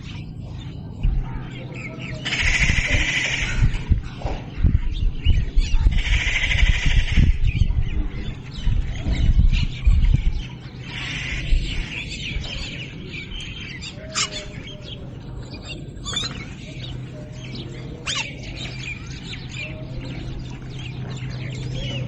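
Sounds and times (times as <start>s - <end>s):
low rumble: 0.0s - 13.8s
small birds chirping: 0.0s - 22.0s.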